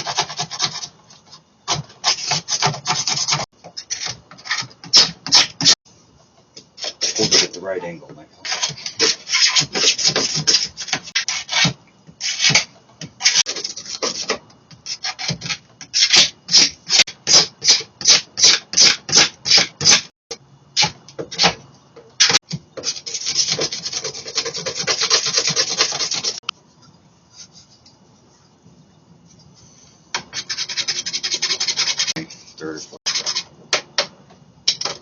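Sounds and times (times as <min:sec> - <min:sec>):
hand sanding rasping strokes: 0:22.8 - 0:26.5, 0:30.4 - 0:33.5.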